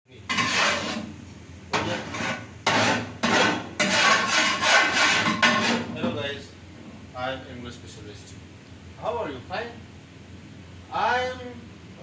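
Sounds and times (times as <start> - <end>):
dishes being scrubbed: 0.3 - 1.1, 1.8 - 6.0.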